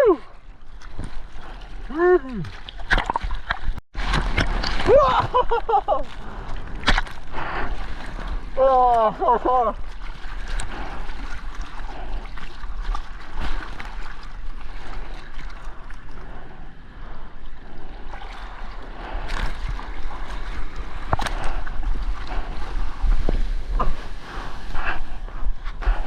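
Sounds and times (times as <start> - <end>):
water sloshing and splashing: 0.0 - 26.0.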